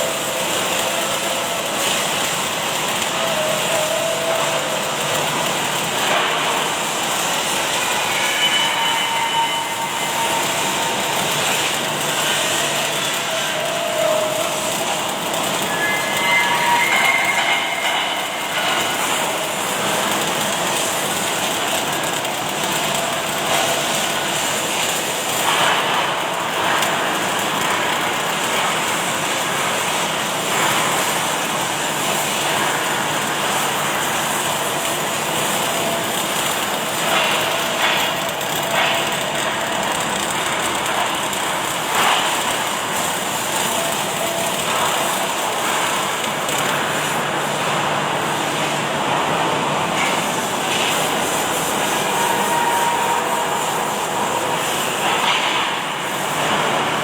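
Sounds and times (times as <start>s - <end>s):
welding machine hissing: 0.0s - 57.0s.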